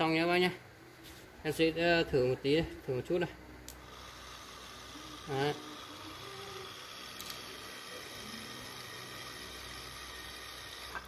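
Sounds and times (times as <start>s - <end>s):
electric motor running: 3.8s - 11.0s.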